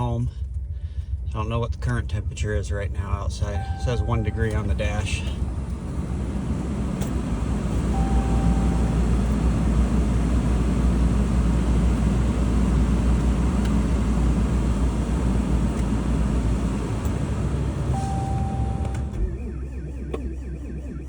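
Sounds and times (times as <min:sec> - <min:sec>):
diesel engine running: 0:00.0 - 0:21.0
short beep: 0:03.5 - 0:05.3, 0:07.9 - 0:09.2, 0:17.9 - 0:19.3.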